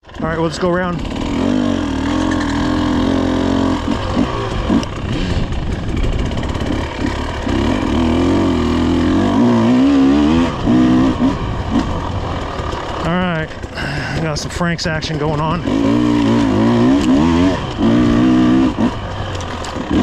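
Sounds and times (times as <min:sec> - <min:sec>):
off-road vehicle engine revving: 0:00.0 - 0:20.0.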